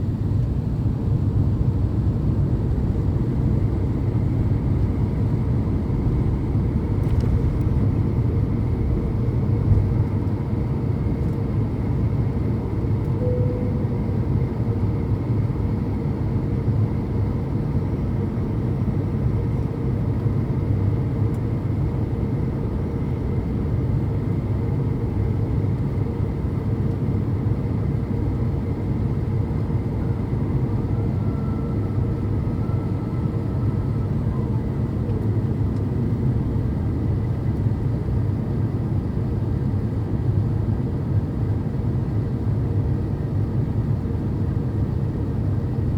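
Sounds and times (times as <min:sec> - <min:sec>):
airplane cabin drone: 0:00.0 - 0:45.9
faint steady hum: 0:13.0 - 0:16.0.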